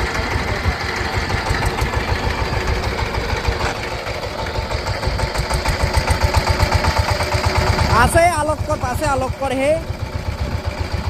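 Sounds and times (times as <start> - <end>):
tiller engine chugging: 0.0 - 11.0.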